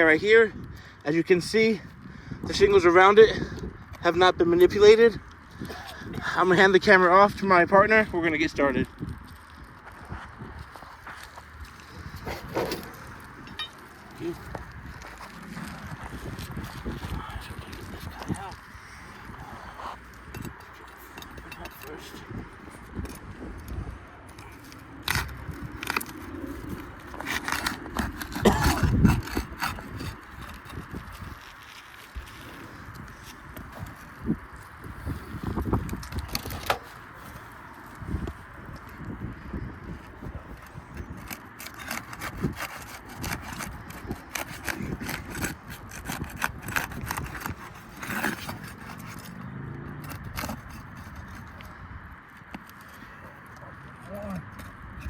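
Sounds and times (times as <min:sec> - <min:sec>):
scraping roof shingles: 0:09.5 - 0:34.6, 0:39.9 - 0:49.4
sharp clicks of shingle tabs: 0:22.6 - 0:32.0, 0:40.5 - 0:51.7.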